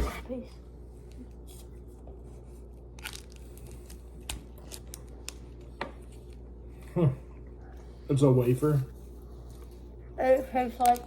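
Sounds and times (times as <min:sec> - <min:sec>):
steady low hum: 0:00.0 - 0:11.0
crunching wafer bar: 0:02.9 - 0:05.7.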